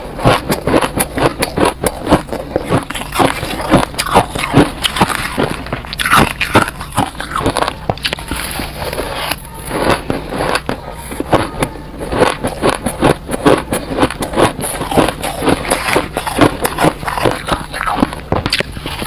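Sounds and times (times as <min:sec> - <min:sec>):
ice being chewed: 0:00.0 - 0:19.0.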